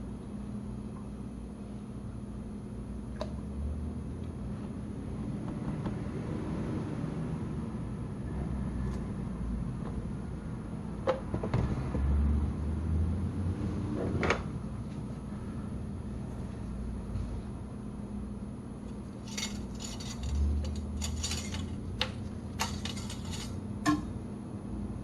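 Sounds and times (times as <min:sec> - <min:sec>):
low steady rumble: 0:14.5 - 0:25.0.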